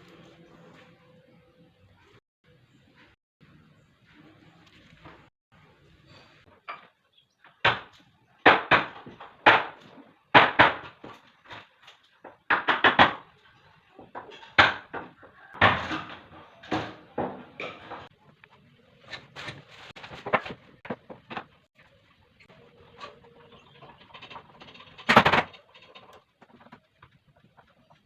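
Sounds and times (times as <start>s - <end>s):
knocks and bangs on wood: 7.5s - 13.3s, 14.0s - 18.1s, 20.0s - 21.6s, 25.0s - 25.6s.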